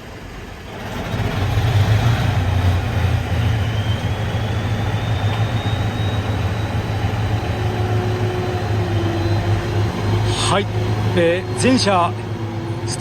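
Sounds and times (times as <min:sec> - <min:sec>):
diesel engine running: 0:00.0 - 0:13.0
high whine rising in pitch: 0:02.4 - 0:12.5.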